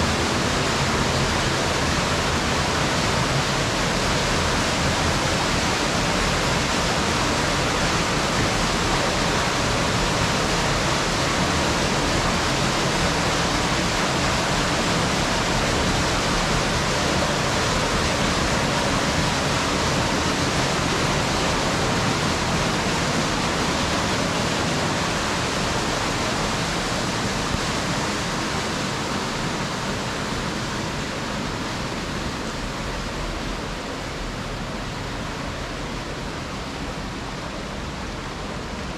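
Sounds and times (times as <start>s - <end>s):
fast-flowing water rushing: 0.0s - 38.9s.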